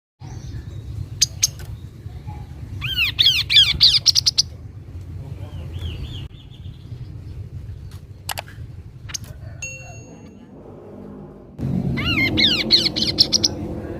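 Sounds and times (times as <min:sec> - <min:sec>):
bird chirping: 0:00.2 - 0:13.9
steady low rumble: 0:00.2 - 0:13.9
sharp clicks: 0:07.9 - 0:08.5.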